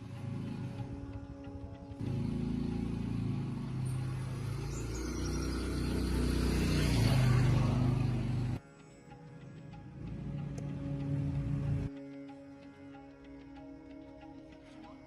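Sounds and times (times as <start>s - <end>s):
tractor engine running: 0.0s - 8.6s.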